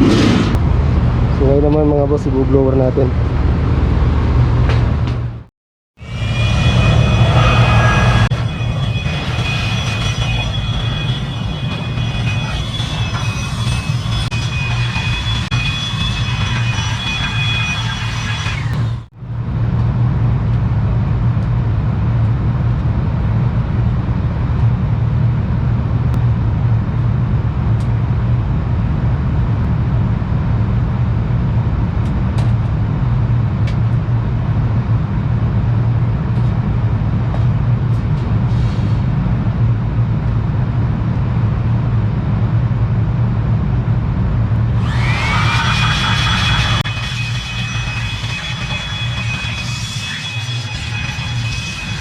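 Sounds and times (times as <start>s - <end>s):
high-pitched whine: 6.0s - 19.6s, 44.6s - 52.0s.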